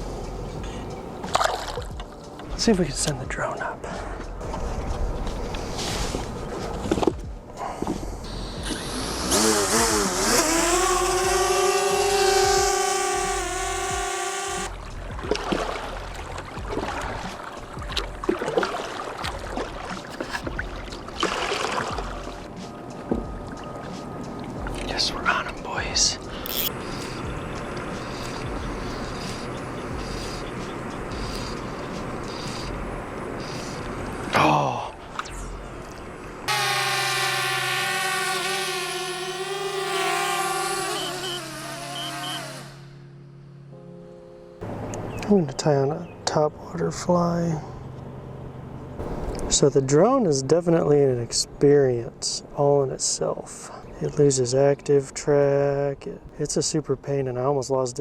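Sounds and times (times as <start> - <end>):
water splashing and lapping: 1.1 - 2.5, 3.9 - 7.2, 14.7 - 25.0
drone propellers whining: 7.8 - 15.0, 26.2 - 34.4, 35.3 - 43.2.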